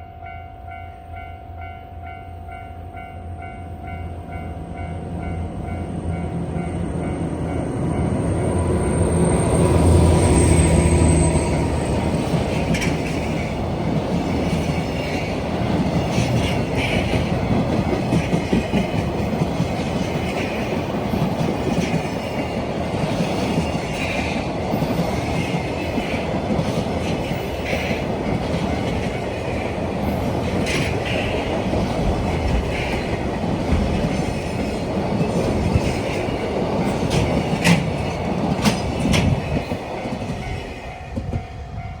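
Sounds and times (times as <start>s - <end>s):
train wheels rumbling on rails: 3.4s - 42.0s.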